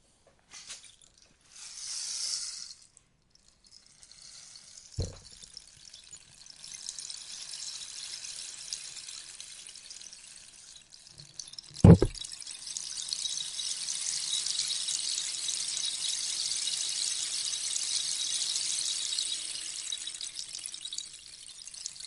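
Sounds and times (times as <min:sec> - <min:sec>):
rainstick beads trickling: 0:00.5 - 0:22.0
knock: 0:05.0 - 0:05.2, 0:11.8 - 0:12.2.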